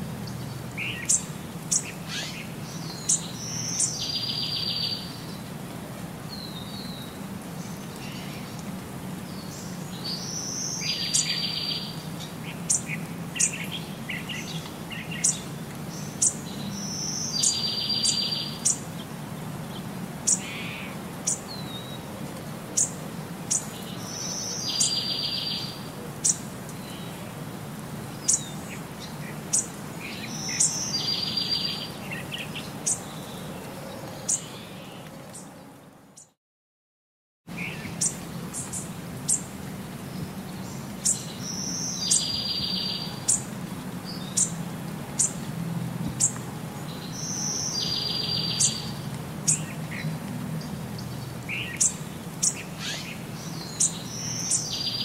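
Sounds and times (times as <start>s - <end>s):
bird chirping: 0.2s - 5.4s, 9.3s - 18.8s, 22.8s - 27.2s, 28.2s - 35.5s, 40.5s - 43.5s, 46.2s - 50.0s, 51.0s - 55.0s.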